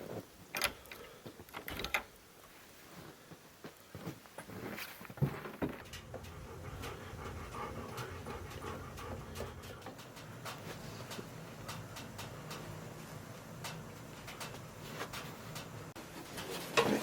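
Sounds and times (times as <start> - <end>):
dog panting: 5.6 - 12.2.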